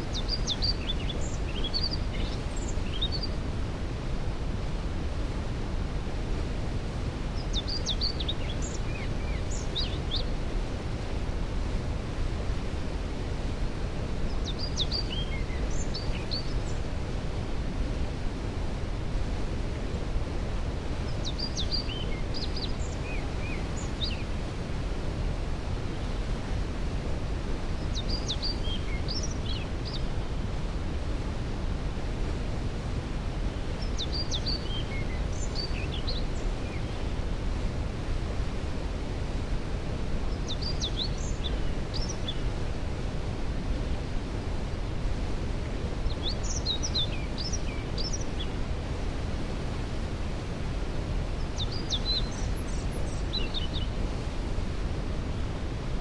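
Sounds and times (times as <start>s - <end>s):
songbird singing: 0.0s - 3.4s, 7.4s - 10.3s, 14.2s - 16.9s, 21.0s - 24.4s, 27.8s - 30.2s, 33.5s - 37.2s, 40.3s - 42.5s, 46.0s - 48.6s, 51.3s - 54.3s.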